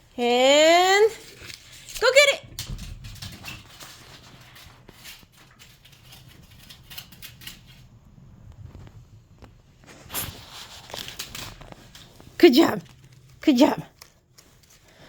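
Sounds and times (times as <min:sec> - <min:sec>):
kitten scampering taps and scuffs: 0:02.5 - 0:07.9.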